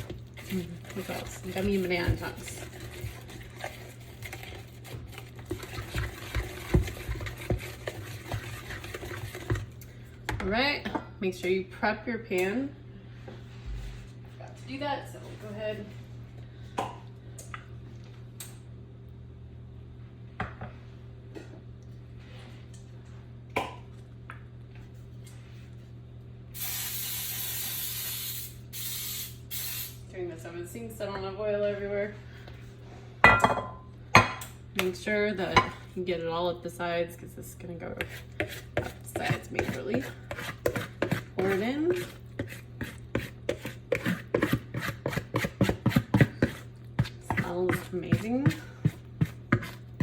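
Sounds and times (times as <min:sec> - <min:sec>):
thick batter being stirred: 0:00.0 - 0:10.0, 0:37.5 - 0:50.0.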